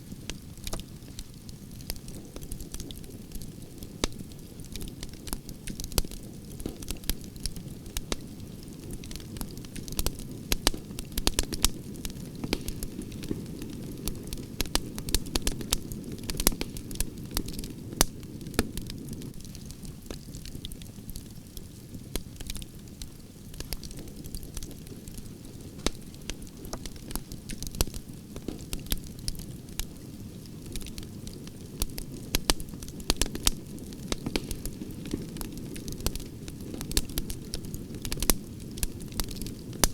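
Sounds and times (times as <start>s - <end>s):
wood fire crackling: 0.0s - 39.9s
low rush of flames: 0.1s - 39.9s
sharp pops and snaps: 3.9s - 8.2s, 12.4s - 13.7s, 25.7s - 29.9s, 31.8s - 39.9s.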